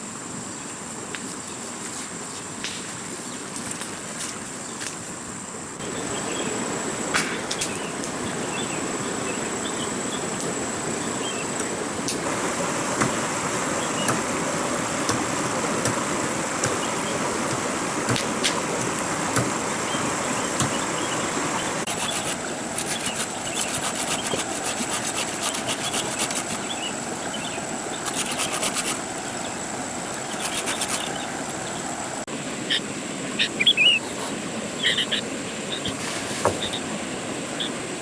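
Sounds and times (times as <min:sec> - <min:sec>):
steady hiss: 0:00.0 - 0:38.0
rapid clicking: 0:21.8 - 0:26.6, 0:28.1 - 0:29.2, 0:30.2 - 0:31.2.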